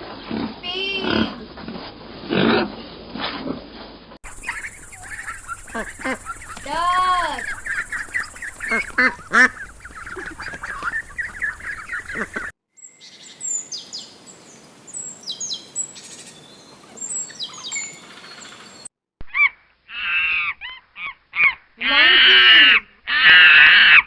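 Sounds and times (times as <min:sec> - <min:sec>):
loud pitched bird call: 0:04.2 - 0:14.0
small birds chirping: 0:04.2 - 0:18.9
ducks quacking: 0:04.3 - 0:12.5, 0:19.9 - 0:24.0.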